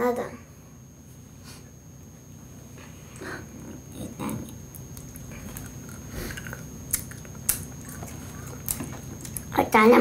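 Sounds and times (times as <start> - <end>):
child chewing: 3.2 - 9.6.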